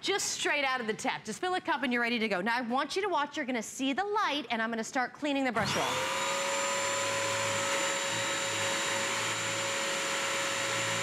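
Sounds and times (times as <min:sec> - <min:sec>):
vacuum motor whine: 0:05.6 - 0:11.0.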